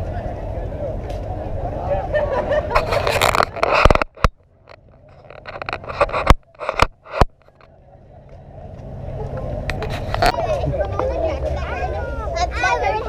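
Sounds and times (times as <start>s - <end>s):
outdoor background noise: 0.0s - 13.0s
faint scraping: 2.5s - 7.8s, 9.2s - 11.7s.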